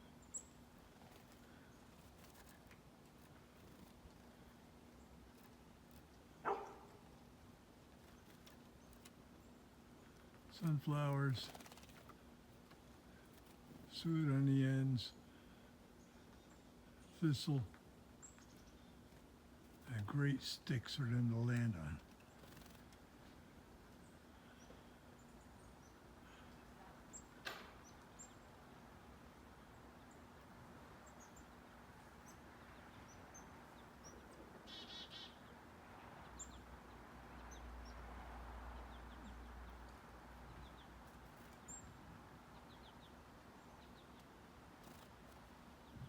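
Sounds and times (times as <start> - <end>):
small songbirds chirping: 0.0 - 46.0
bird trill: 34.1 - 35.4.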